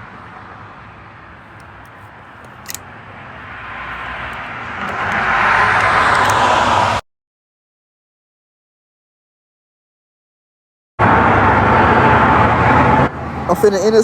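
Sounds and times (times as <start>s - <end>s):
vehicle passing with rushing sound: 0.0s - 7.0s, 11.0s - 14.0s.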